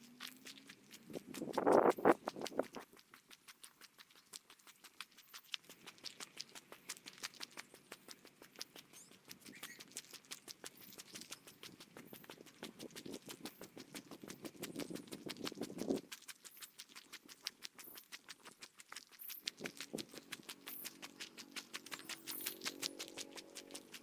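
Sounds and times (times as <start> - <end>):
quick footsteps crunching: 0.1 - 3.0, 10.7 - 24.0.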